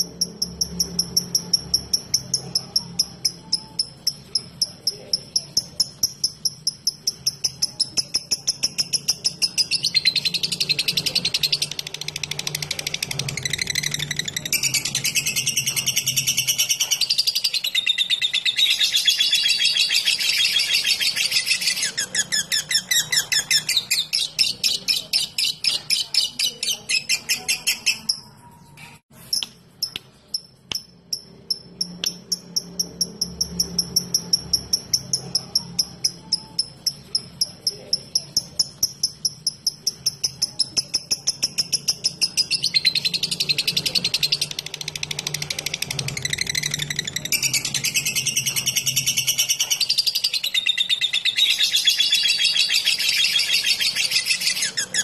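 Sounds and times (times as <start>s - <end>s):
lovebird chattering chirps: 0.0s - 55.0s.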